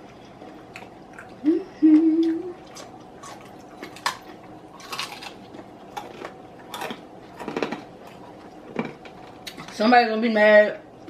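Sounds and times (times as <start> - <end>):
crispy chicken crunching: 2.6 - 9.8.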